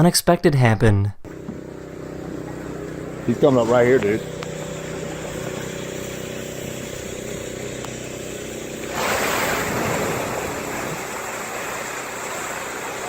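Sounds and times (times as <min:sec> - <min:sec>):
boat engine idling: 0:01.3 - 0:13.0
loud water splash: 0:08.8 - 0:13.0.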